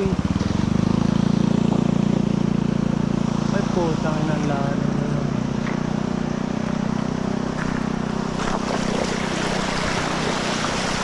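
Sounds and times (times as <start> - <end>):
motorcycle engine running: 0.0 - 11.0
water splashing: 7.5 - 11.0.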